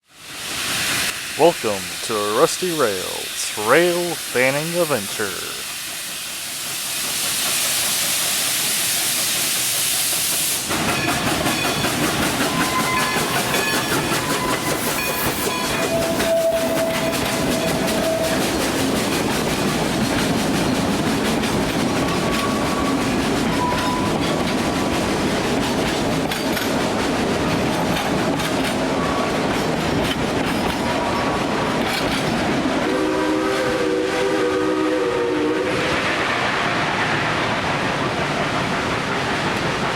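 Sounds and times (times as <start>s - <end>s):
steam hissing: 0.2s - 39.9s
steam train clattering: 0.2s - 39.9s
chime steam whistle: 10.9s - 18.5s.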